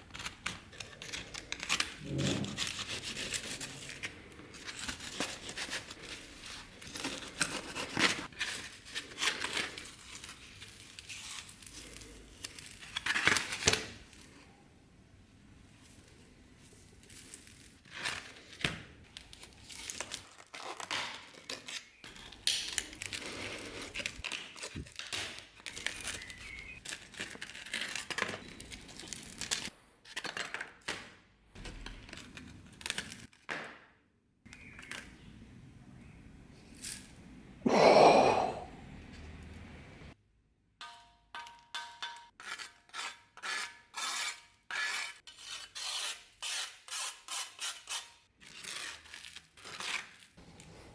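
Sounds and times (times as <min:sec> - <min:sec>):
tool scraping a knife: 0:00.7 - 0:06.2, 0:42.4 - 0:50.0.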